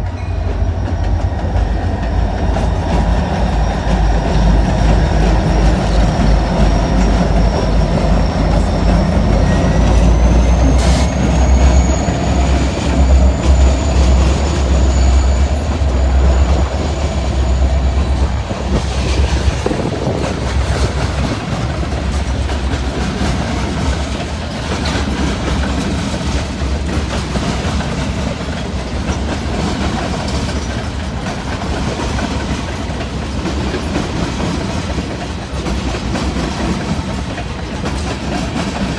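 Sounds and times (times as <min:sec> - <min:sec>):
freight train rumbling past: 0:00.0 - 0:38.9
wheels clicking over rail joints: 0:00.0 - 0:38.9
high wheel squeal: 0:00.1 - 0:23.8.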